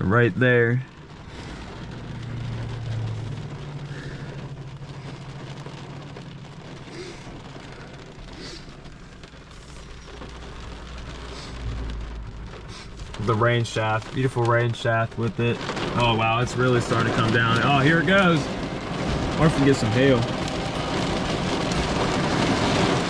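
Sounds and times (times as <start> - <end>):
heavy rain: 0.0 - 23.0
low steady hum: 0.8 - 23.0
deep thunder rumble: 0.9 - 23.0.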